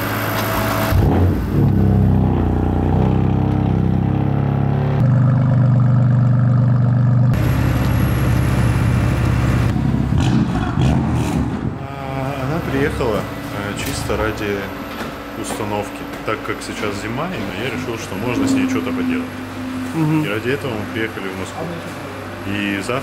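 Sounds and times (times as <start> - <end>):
motor vehicle engine running: 0.0 - 23.0.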